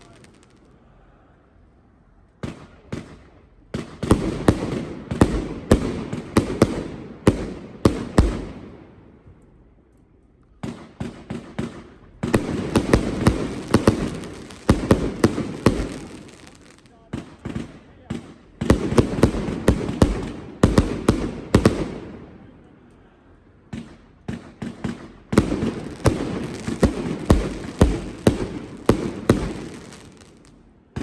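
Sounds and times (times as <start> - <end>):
firework crackling: 0.0 - 0.8, 11.1 - 22.0, 23.8 - 31.0
firework reports: 0.0 - 1.3, 10.6 - 31.0.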